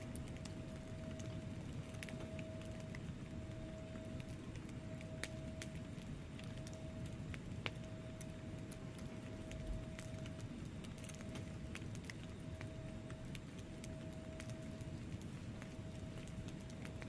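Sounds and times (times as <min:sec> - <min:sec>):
faint steady tone: 0:00.0 - 0:17.0
wood fire crackling: 0:00.0 - 0:17.0.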